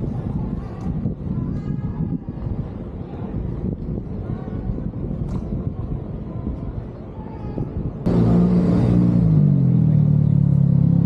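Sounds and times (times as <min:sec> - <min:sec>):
low vehicle rumble: 0:07.9 - 0:11.0
engine running close by: 0:08.1 - 0:11.0.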